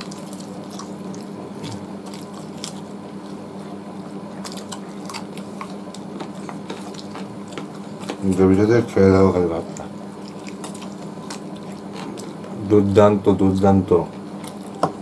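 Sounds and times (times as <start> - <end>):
people chewing chicken: 0.0 - 13.0, 14.1 - 15.0
low steady hum: 0.0 - 15.0.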